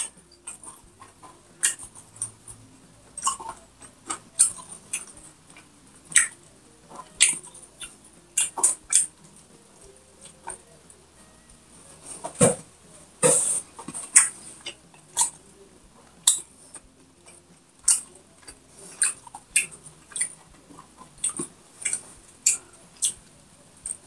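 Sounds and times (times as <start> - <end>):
chewing with lip smacks: 0.0 - 2.4, 3.1 - 9.2, 13.2 - 15.4, 16.2 - 23.2.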